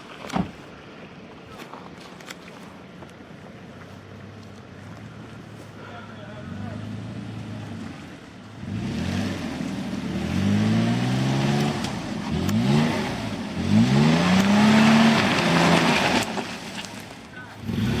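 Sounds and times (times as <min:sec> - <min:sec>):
water and tyres rushing: 0:00.0 - 0:18.0
off-road vehicle engine revving: 0:04.0 - 0:18.0.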